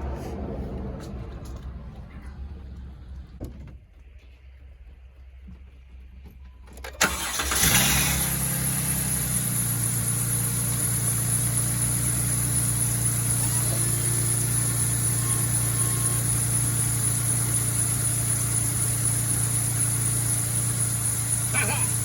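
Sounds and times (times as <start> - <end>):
engine starting and idling: 6.6 - 22.0
ignition click: 6.8 - 7.9.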